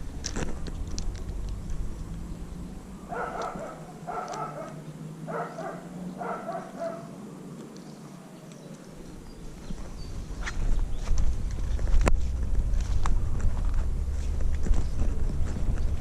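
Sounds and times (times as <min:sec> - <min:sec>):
dog barking: 0:03.1 - 0:07.1.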